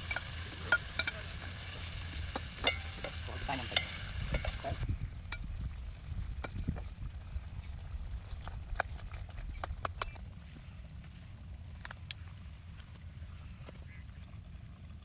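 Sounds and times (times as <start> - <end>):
utensil knocking against pan: 0.0 - 1.5, 2.2 - 4.8
food sizzling in a pan: 0.0 - 4.9.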